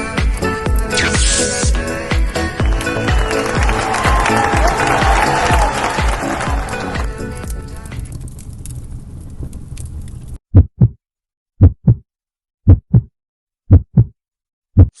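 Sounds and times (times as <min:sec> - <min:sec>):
heartbeat thumps: 0:10.5 - 0:11.0, 0:11.6 - 0:12.0, 0:12.7 - 0:13.1, 0:13.7 - 0:14.1, 0:14.8 - 0:15.0.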